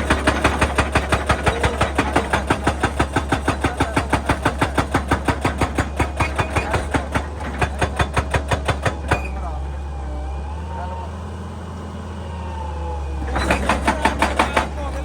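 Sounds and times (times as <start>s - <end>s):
hydraulic breaker pounding rock: 0.0s - 9.5s, 13.2s - 15.0s
diesel engine running: 0.0s - 15.0s.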